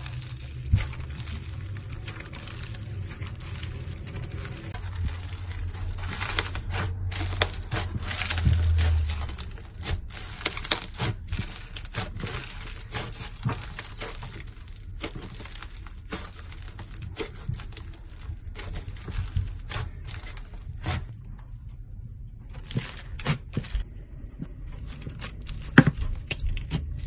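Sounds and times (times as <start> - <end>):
slime crackling and popping: 0.0 - 21.3.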